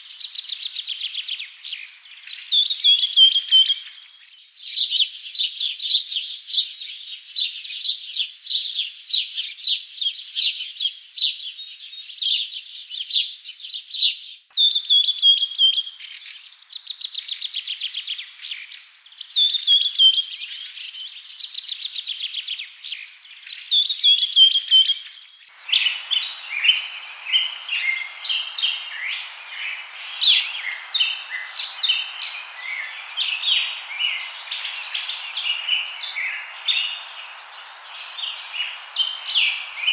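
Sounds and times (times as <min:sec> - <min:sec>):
songbirds singing: 0:00.0 - 0:39.9
steady hiss: 0:25.4 - 0:39.9.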